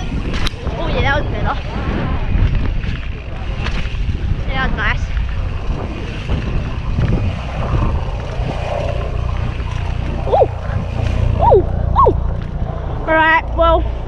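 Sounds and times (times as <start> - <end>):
wind buffeting microphone: 0.0 - 14.0
short rising and falling call: 10.2 - 12.3.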